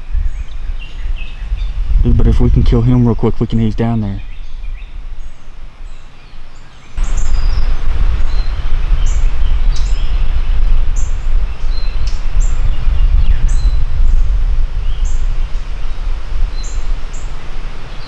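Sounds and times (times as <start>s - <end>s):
small birds chirping: 0.0s - 18.0s
loud low rumble: 7.0s - 17.8s.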